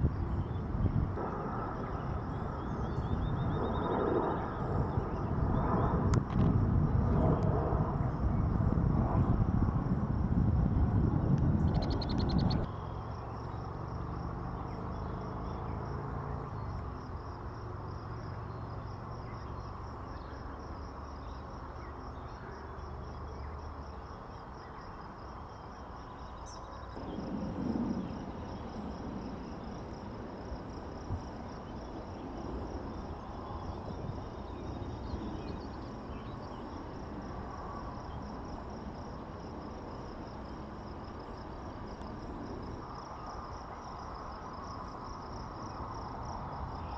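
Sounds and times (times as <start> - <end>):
insects trilling: 0.0 - 46.9
low rumble: 27.0 - 31.3.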